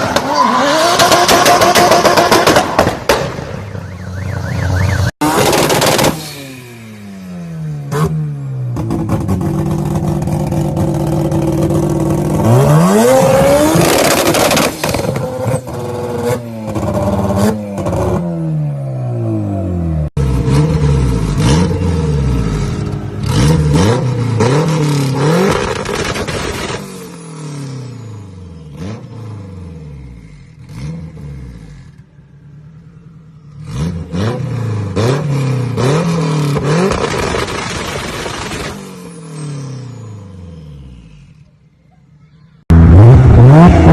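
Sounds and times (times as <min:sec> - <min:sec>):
car engine revving: 0:04.8 - 0:41.2, 0:42.7 - 0:43.9
exhaust popping and crackling: 0:25.1 - 0:26.9, 0:36.5 - 0:38.8.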